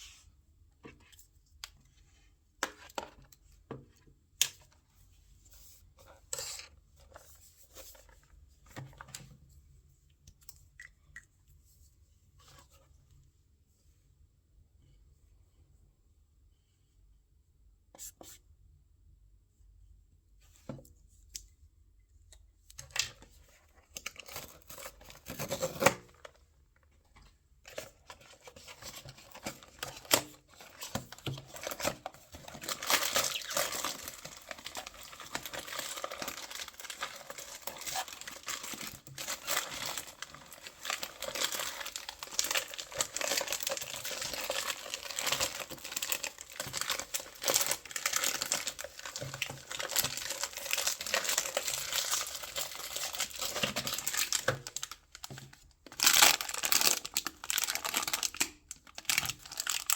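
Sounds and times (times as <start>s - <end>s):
packaging crinkling and tearing: 23.9s - 26.4s, 27.6s - 59.9s.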